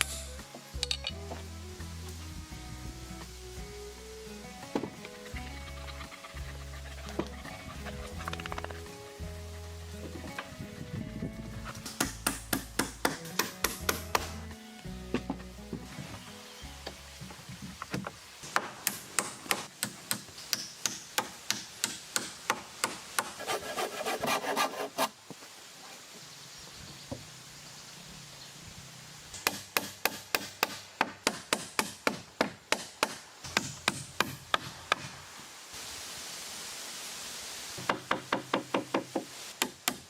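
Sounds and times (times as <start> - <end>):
hand tool working timber: 9.9 - 14.5, 17.8 - 25.2.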